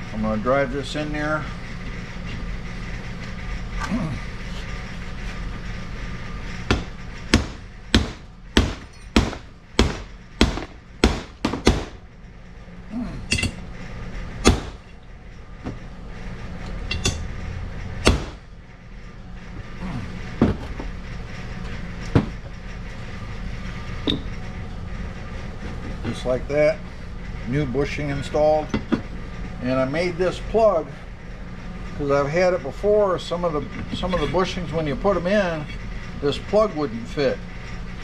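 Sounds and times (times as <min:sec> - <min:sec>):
steady low hum: 0:00.0 - 0:38.0
hammer striking metal: 0:06.7 - 0:12.0, 0:13.3 - 0:13.6, 0:14.4 - 0:15.0, 0:16.9 - 0:17.3, 0:18.0 - 0:18.5.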